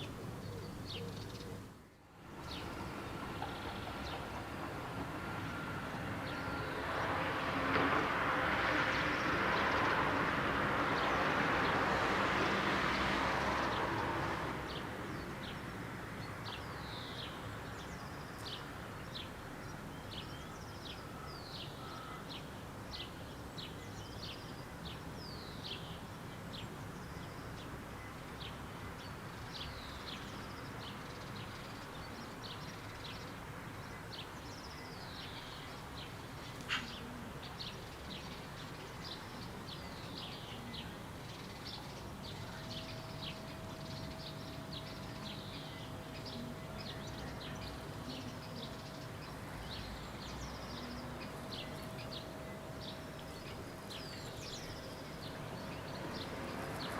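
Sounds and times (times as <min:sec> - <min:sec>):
birds chirping: 0:29.0 - 0:56.9.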